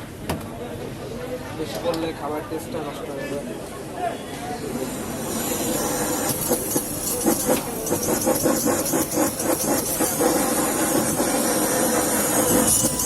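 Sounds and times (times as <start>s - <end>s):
stove burner hissing: 5.0s - 13.0s.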